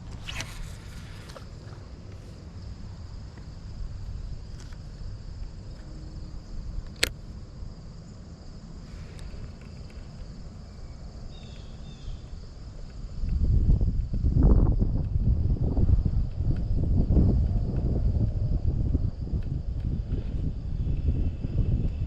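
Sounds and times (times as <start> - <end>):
insects trilling: 0.0 - 22.0
sharp click: 6.8 - 7.2.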